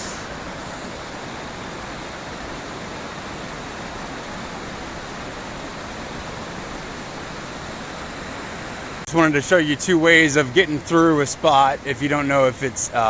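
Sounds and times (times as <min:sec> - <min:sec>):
roar of rushing water: 0:00.0 - 0:13.0.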